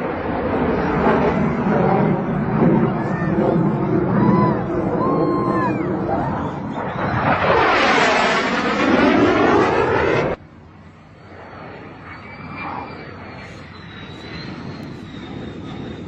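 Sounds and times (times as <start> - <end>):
jet aircraft passing: 0.0 - 16.0
jet engine high whine: 0.0 - 16.0.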